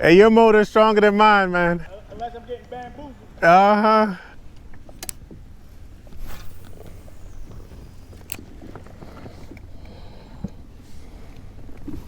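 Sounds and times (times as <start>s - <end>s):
sharp clicks: 5.0s - 5.2s.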